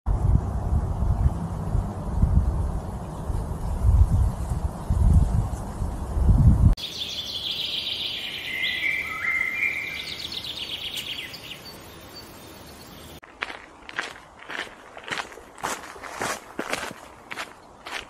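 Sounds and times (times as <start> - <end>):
wind rumble on microphone: 0.1 - 6.8
birdsong trills: 6.8 - 13.2
footsteps on gravel: 13.2 - 18.0.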